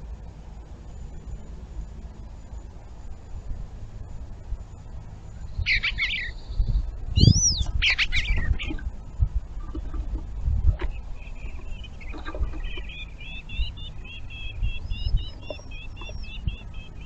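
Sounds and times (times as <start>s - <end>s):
steady low rumble: 0.0s - 17.0s
bird chirping and whistling: 5.5s - 8.8s, 11.2s - 17.0s.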